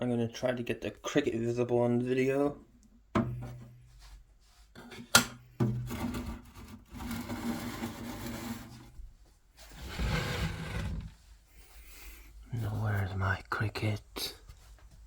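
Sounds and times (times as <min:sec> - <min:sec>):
rubbing and scraping: 0:05.8 - 0:09.0, 0:09.6 - 0:11.4.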